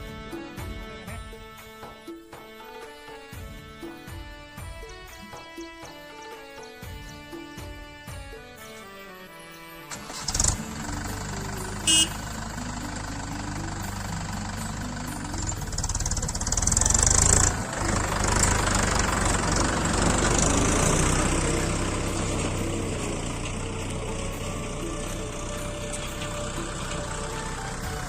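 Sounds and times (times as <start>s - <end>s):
tractor diesel engine running: 9.9s - 28.0s.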